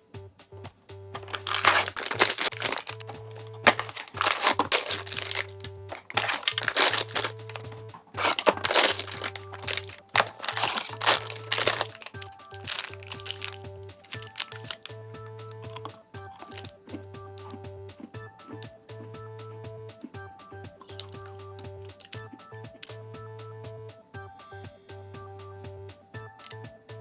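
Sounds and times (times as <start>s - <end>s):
background music: 0.0s - 27.0s
plastic packaging crinkling: 1.2s - 14.9s, 15.7s - 16.7s, 20.8s - 21.2s, 22.0s - 22.2s.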